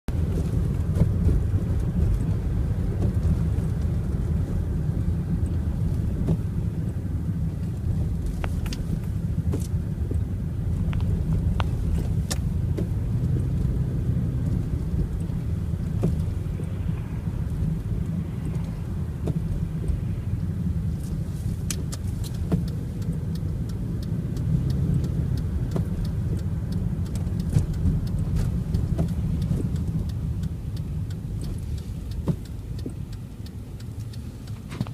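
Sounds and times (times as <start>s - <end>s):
faint clicks: 17.4s - 34.9s.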